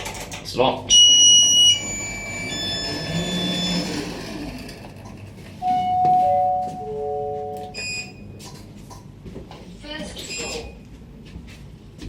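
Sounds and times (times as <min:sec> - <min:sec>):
descending lift chime: 0:00.9 - 0:04.4, 0:05.6 - 0:08.3.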